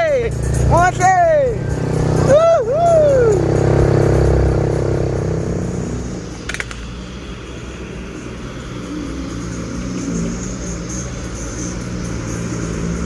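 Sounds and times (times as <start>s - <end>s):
truck engines rumbling: 0.0s - 13.0s
sharp click: 6.4s - 6.9s.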